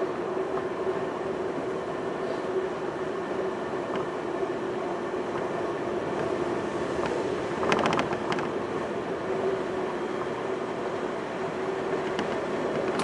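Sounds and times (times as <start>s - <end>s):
train interior rumble and hum: 0.0s - 13.0s
train clicks and clatter: 3.8s - 4.2s, 5.3s - 6.4s, 7.0s - 8.9s, 11.8s - 13.0s.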